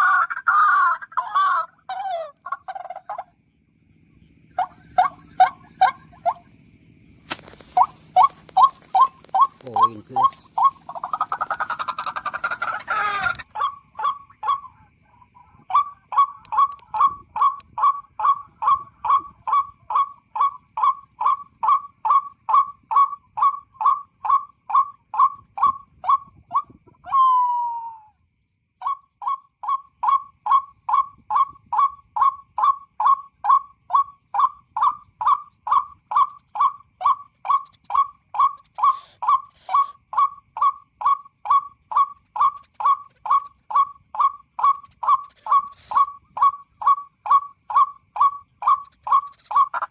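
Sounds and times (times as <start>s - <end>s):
harsh rasping bird call: 7.3s - 14.7s, 34.8s - 40.0s, 41.9s - 49.9s
bird short calls: 7.3s - 14.8s, 33.9s - 49.9s.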